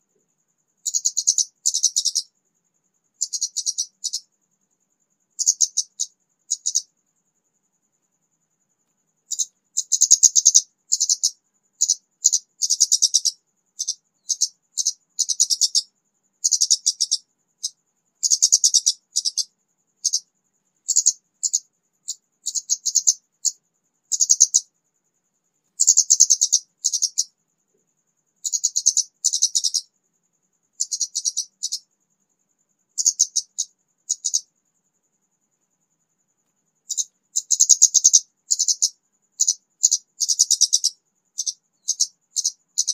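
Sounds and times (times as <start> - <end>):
bird twittering song: 0.8 - 2.3, 3.2 - 4.3, 5.4 - 6.9, 9.3 - 20.3, 20.9 - 24.7, 25.8 - 27.3, 28.4 - 29.9, 30.8 - 31.9, 33.0 - 34.5, 36.9 - 42.9.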